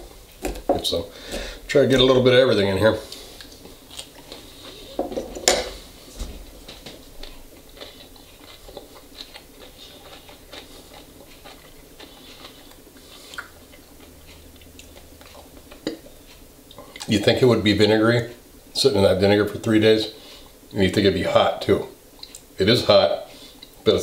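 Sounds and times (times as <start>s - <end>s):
person chewing crunchy food: 2.9s - 17.1s, 23.3s - 23.8s.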